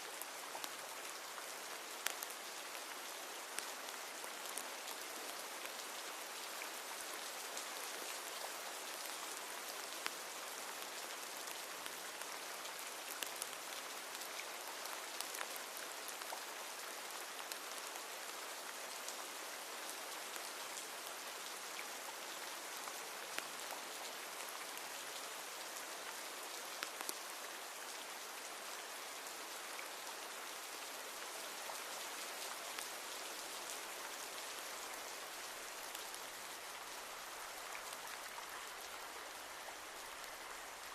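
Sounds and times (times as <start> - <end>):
steady rain falling: 0.0 - 40.9
raindrops ticking on hard surfaces: 0.1 - 28.0.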